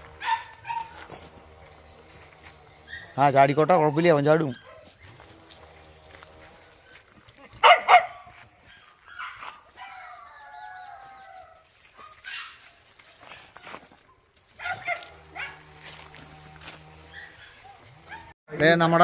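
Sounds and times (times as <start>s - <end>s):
dog barking: 0.2s - 1.0s, 7.6s - 8.4s, 14.6s - 15.7s, 17.1s - 18.3s
dog yelping and whining: 2.7s - 5.1s.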